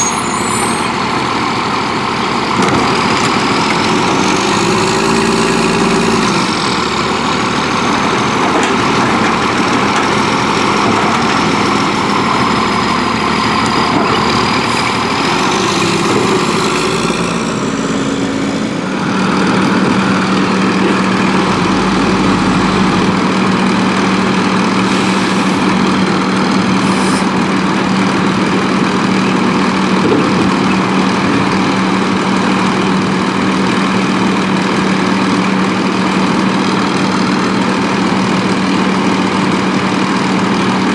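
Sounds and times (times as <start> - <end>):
truck diesel engine running: 0.0 - 40.9
high whine: 17.0 - 27.4.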